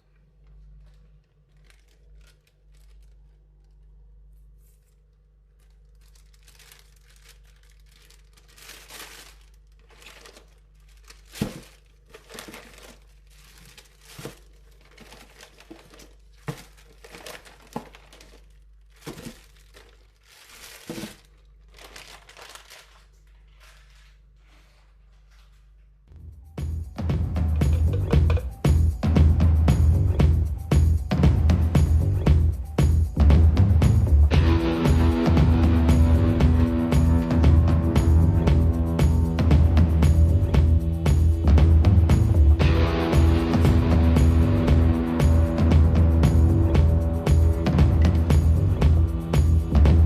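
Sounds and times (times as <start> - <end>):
low steady hum: 0.0 - 30.5
packaging crinkling: 0.4 - 24.8.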